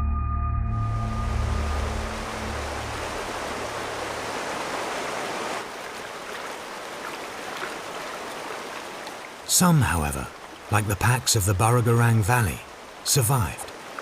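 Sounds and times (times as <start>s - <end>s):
low music drone: 0.0s - 4.2s
water rushing over rocks: 1.6s - 14.0s.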